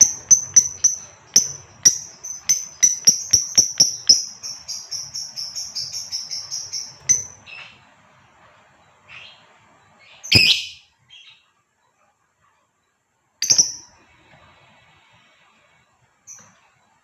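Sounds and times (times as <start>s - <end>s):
lovebird chirping: 0.0s - 8.2s, 9.0s - 11.6s, 13.4s - 14.0s
faint short bird calls: 10.1s - 11.5s.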